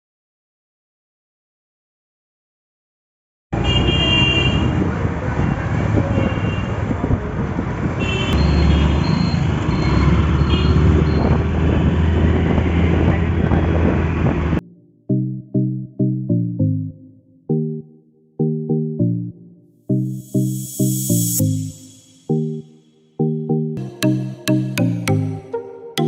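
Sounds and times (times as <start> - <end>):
car horn honks: 3.6 - 4.8, 8.0 - 11.3
road traffic rumble: 3.6 - 14.6.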